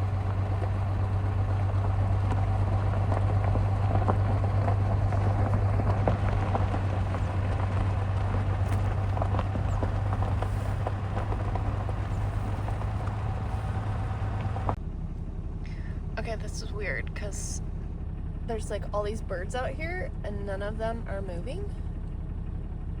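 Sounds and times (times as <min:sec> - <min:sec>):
tyre crackles: 0:00.0 - 0:14.8
truck engine and road drone: 0:00.0 - 0:23.0.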